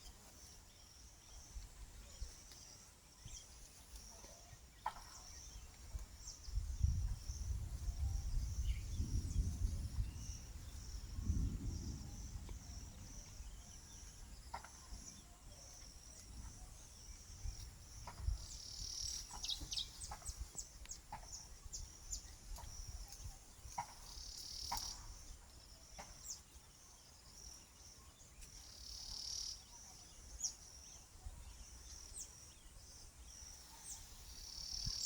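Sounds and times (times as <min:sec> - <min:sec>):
bird chirping: 0:00.0 - 0:35.0
insects chorus: 0:00.0 - 0:35.0.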